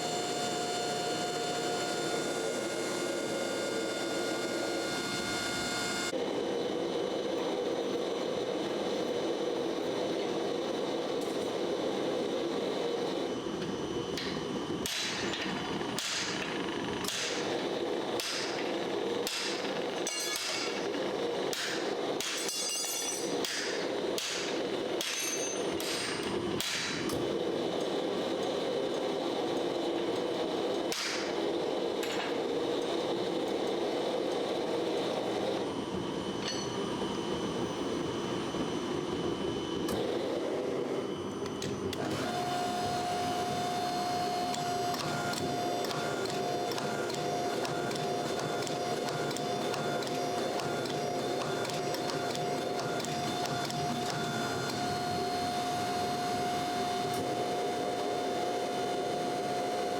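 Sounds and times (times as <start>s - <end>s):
machine running: 0.0s - 6.6s, 23.2s - 59.9s
steady whining tone: 0.0s - 20.0s, 27.2s - 59.9s.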